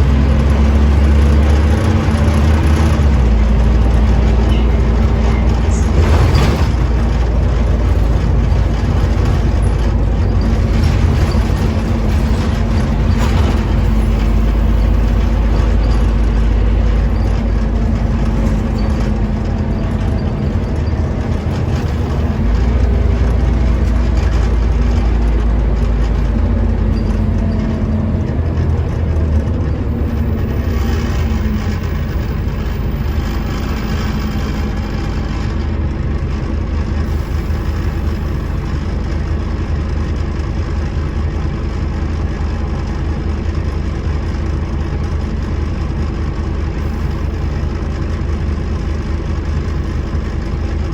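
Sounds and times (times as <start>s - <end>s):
bus diesel engine rumbling: 0.0s - 50.9s
road noise: 0.0s - 50.9s
sharp clatter: 0.2s - 35.8s.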